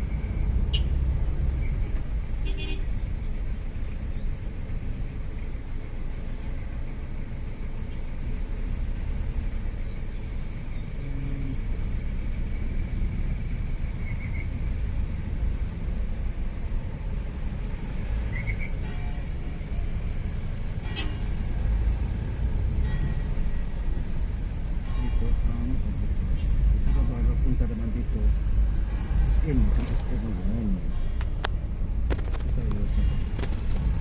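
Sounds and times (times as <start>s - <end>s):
vehicle engine and road noise: 0.0s - 34.0s.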